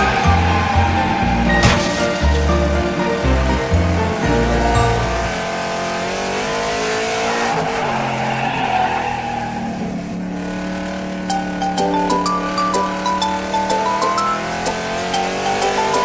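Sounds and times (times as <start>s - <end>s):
tyres screeching: 0.0s - 5.2s
music tune: 0.0s - 5.8s, 11.3s - 16.0s
cartoon car engine revving: 0.0s - 16.0s.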